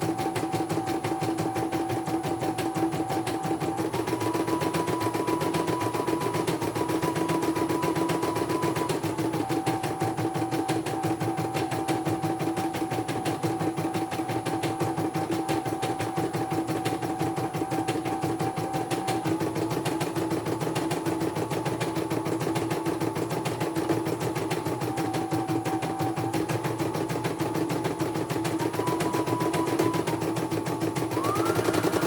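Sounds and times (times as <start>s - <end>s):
machine motor hum: 24.0s - 32.0s.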